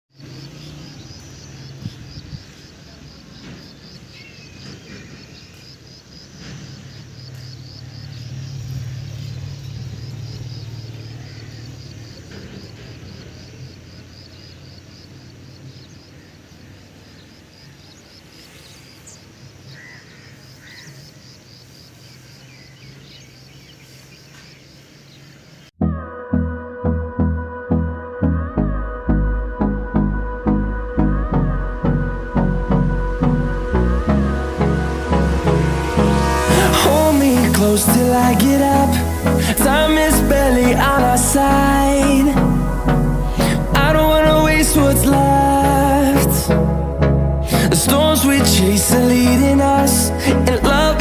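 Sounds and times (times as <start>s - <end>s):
high pulsing chirping: 0.1s - 25.7s, 26.4s - 51.0s
low steady rumble: 28.4s - 51.0s.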